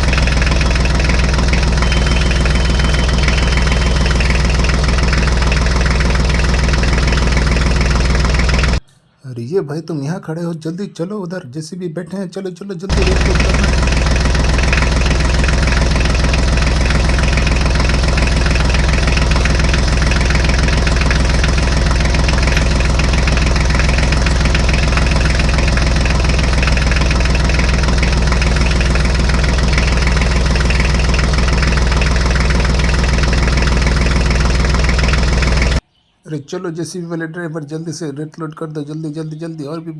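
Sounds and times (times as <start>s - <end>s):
diesel engine idling: 0.0s - 8.9s, 12.9s - 35.8s.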